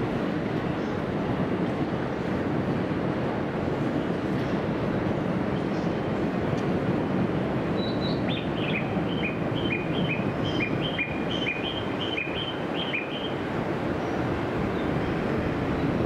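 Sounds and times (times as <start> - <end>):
train rumbling over points: 0.0 - 16.0
high bird-like chirps: 7.8 - 13.4.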